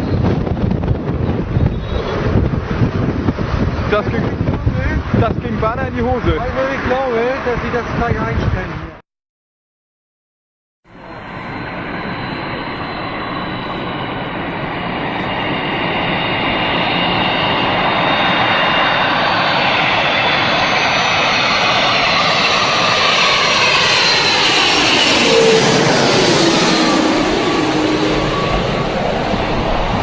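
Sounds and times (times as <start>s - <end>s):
jet engines whining: 0.0s - 9.0s, 10.9s - 30.0s
sweeping phasing rush: 10.9s - 30.0s.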